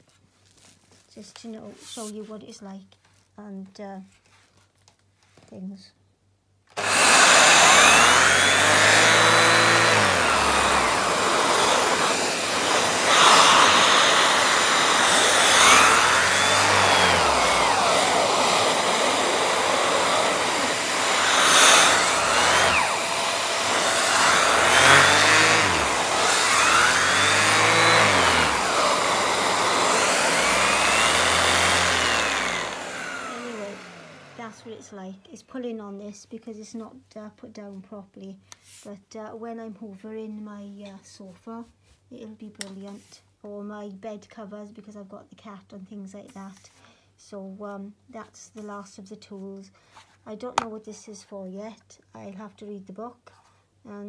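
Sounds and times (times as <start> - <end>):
upright vacuum cleaner running: 6.7 - 34.8.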